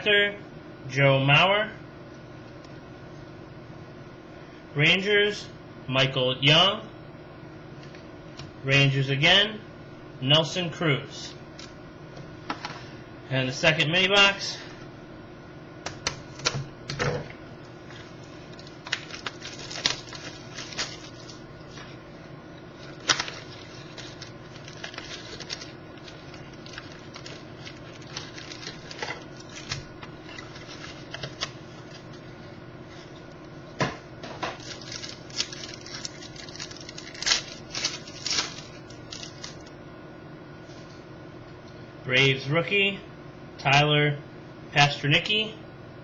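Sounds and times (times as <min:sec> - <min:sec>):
faint steady hum: 0:00.0 - 0:46.0
cardboard and wrappers crinkling: 0:17.9 - 0:22.0, 0:22.7 - 0:32.2, 0:34.4 - 0:39.7.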